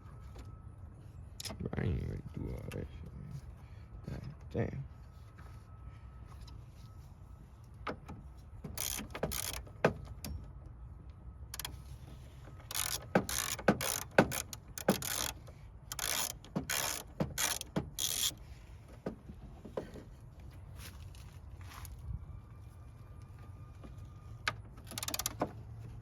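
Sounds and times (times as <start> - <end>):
ratchet wrench clicking: 8.8 - 9.7, 11.6 - 11.8, 12.7 - 18.4, 24.8 - 25.4.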